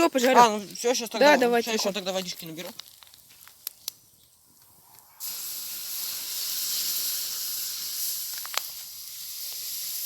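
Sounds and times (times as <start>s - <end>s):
embers hissing under water: 4.8s - 10.0s.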